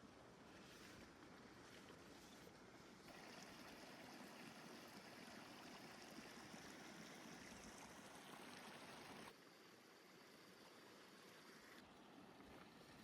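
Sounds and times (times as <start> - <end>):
faint water noise: 0.0 - 13.0.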